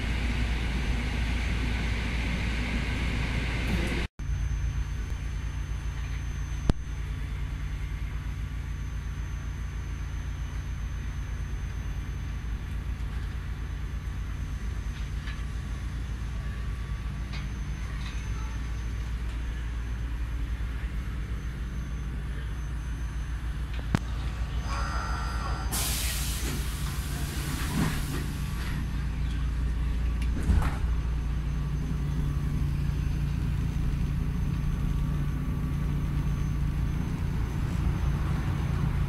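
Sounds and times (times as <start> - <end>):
train carriage low hum: 0.0 - 39.0
compressed air hiss: 25.7 - 28.4.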